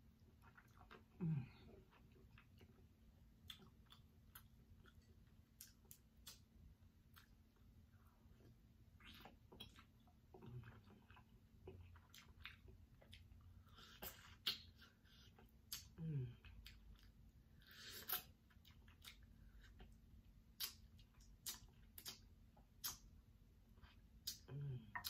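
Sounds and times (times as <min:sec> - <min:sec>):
person biting and chewing: 0:20.5 - 0:22.2.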